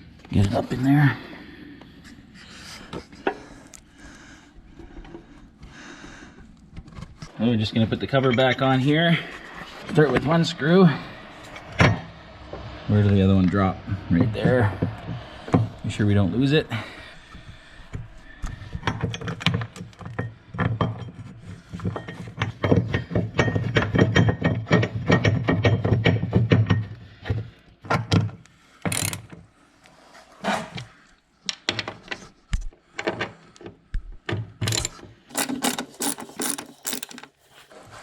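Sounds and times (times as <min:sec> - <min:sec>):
ratchet clicking rapidly: 0:28.9 - 0:29.2, 0:34.7 - 0:37.3.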